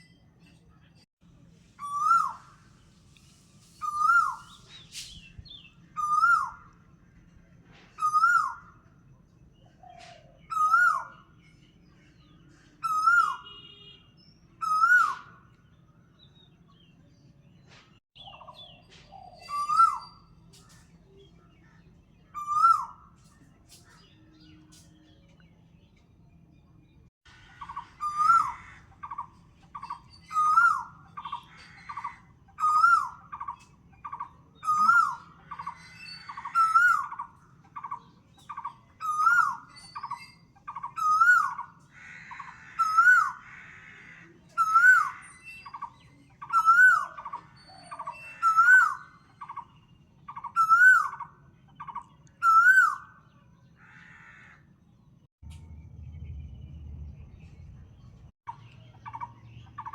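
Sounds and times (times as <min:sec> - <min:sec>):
bird repeating song phrase: 0:27.6 - 0:43.6.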